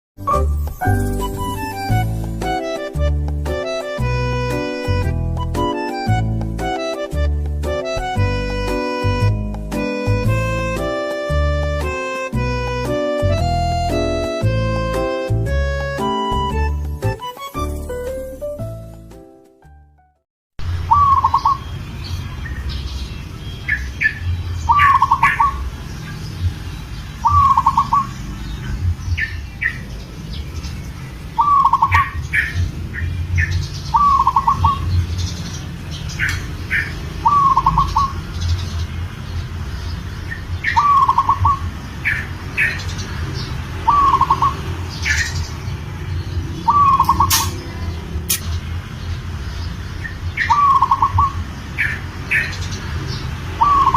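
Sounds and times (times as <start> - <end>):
small birds chirping: 20.6 - 53.9
dove cooing: 27.2 - 28.1, 34.0 - 34.8, 37.2 - 38.2, 40.8 - 41.6, 43.8 - 44.6, 46.6 - 47.6, 50.5 - 51.4.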